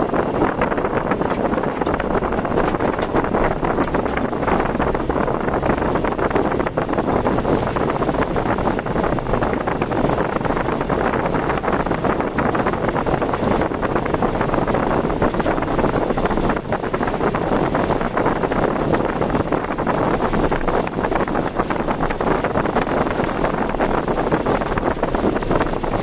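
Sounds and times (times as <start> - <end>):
car road noise: 0.0 - 26.0
rushing wind: 0.0 - 26.0.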